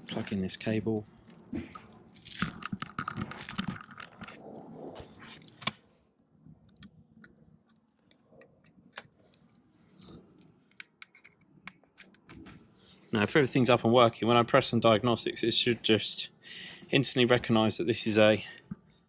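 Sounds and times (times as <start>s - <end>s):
cable rustling and clicking: 0.0s - 5.8s.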